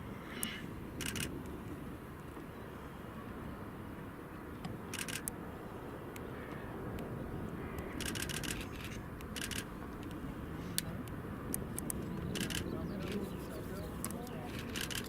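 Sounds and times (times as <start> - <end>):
camera shutter clicks: 1.0 - 1.3, 4.9 - 5.3, 8.0 - 9.7, 11.8 - 13.2, 14.0 - 15.0.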